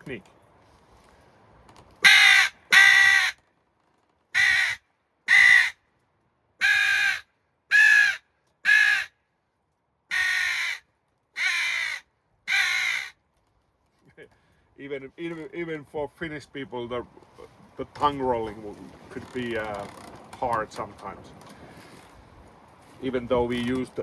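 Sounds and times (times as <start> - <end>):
crow call caws: 2.0 - 3.4, 4.3 - 5.8, 6.6 - 9.2, 10.1 - 13.2.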